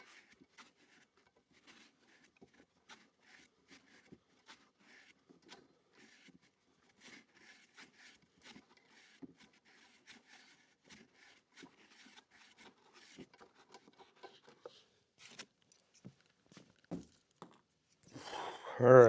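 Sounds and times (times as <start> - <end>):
faint handling clicks and rustles: 11.4 - 18.2.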